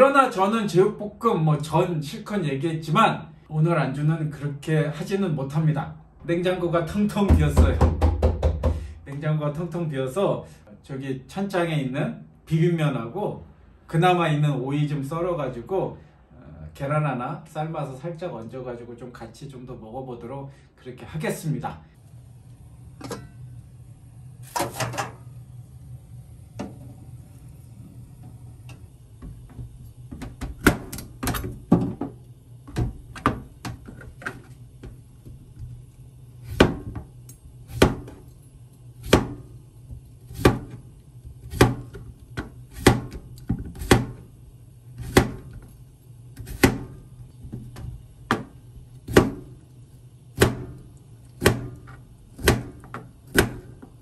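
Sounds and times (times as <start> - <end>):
steady low hum: 21.4 - 54.0
knife chopping on cutting board: 36.5 - 37.1, 37.7 - 38.2, 39.0 - 39.5, 40.3 - 40.8, 41.4 - 44.3, 45.0 - 45.6, 46.4 - 49.5, 50.4 - 50.8, 51.4 - 53.8.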